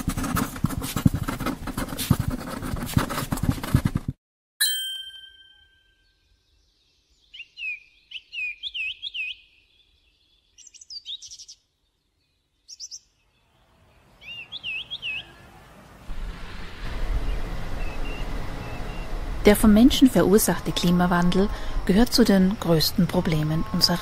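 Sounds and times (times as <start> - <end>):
bell-like chime: 4.6 - 6.0
songbird chirping: 5.4 - 16.1, 17.1 - 19.2
soft rushing background: 15.2 - 22.7.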